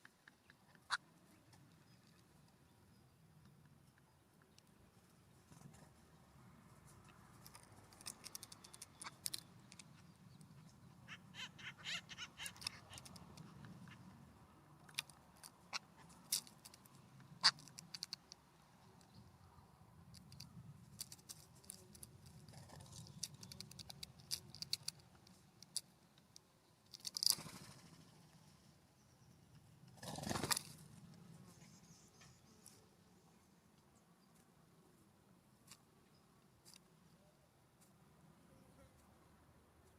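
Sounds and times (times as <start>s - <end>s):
birds pecking at seed: 0.0s - 28.6s, 29.6s - 33.0s.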